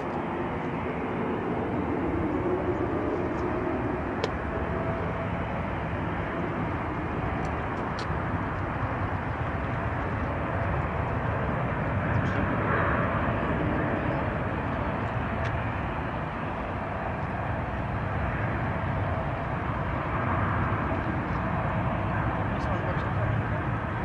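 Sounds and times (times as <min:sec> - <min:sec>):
jet engines rushing: 0:00.0 - 0:24.0.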